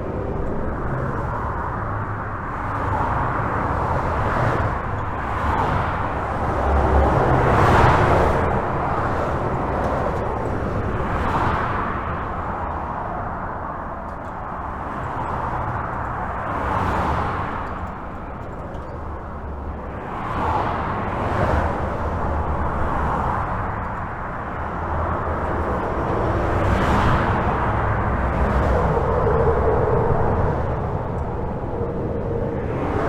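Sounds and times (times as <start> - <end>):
faint vehicle whine: 0.0 - 33.0
highway traffic: 0.0 - 33.0
vehicles passing: 0.0 - 33.0.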